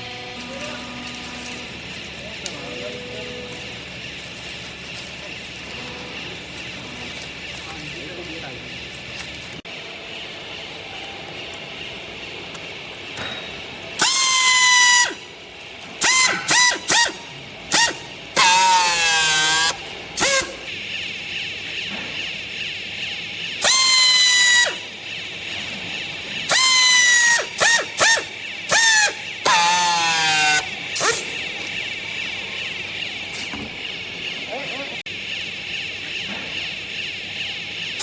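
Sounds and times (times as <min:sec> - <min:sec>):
strapping motor whining: 0:16.0 - 0:20.8, 0:23.6 - 0:37.2.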